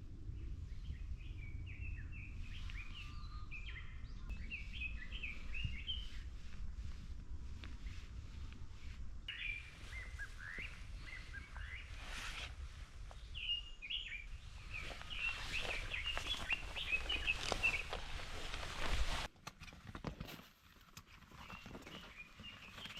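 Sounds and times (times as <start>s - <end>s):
wind rumble on microphone: 0.0s - 19.3s
small birds chirping: 0.4s - 6.4s, 9.2s - 19.3s, 21.2s - 22.9s.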